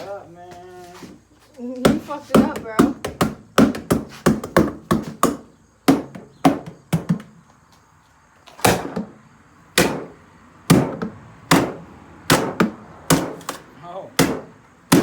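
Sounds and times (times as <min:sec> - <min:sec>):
heavy blows on refrigerator: 0:08.6 - 0:15.0.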